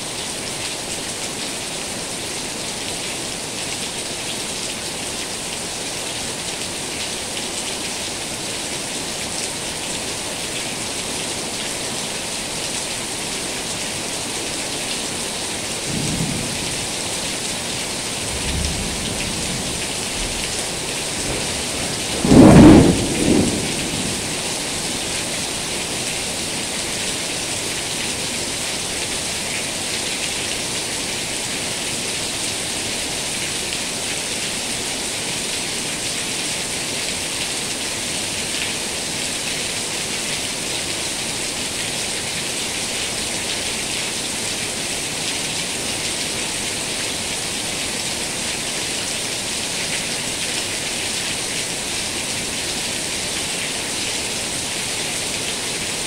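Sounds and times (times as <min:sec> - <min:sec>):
heavy rain: 0:00.0 - 0:56.0
thunder clap: 0:21.2 - 0:24.4.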